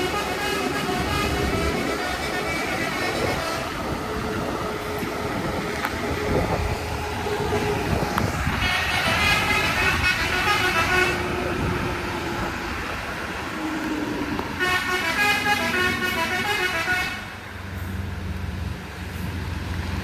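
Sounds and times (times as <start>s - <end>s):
vehicle horn blasts: 0.0s - 2.0s, 8.4s - 11.5s, 14.6s - 17.4s
engine and road rumble: 0.0s - 20.0s.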